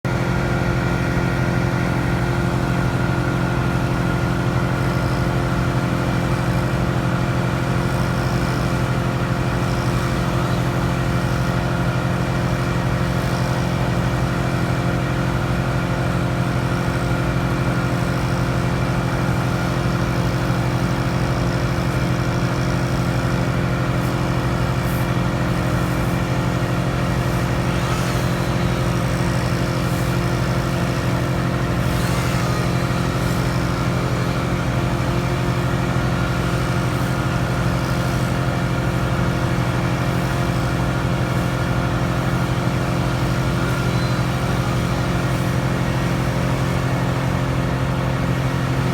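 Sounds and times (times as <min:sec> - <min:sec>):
large engine droning: 0:00.1 - 0:48.9.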